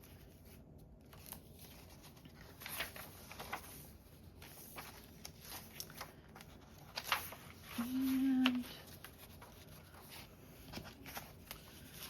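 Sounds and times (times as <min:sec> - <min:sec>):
paper pages rustling: 0:00.0 - 0:12.0
paper scraping: 0:00.1 - 0:12.0.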